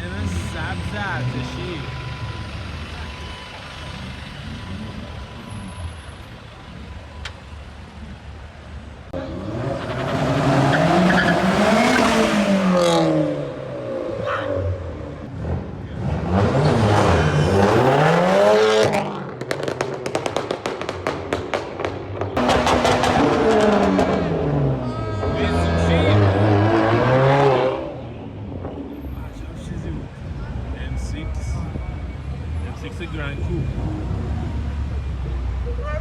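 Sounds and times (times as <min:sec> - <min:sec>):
car engine revving hard: 0:09.2 - 0:20.6, 0:22.4 - 0:24.8, 0:25.4 - 0:28.2.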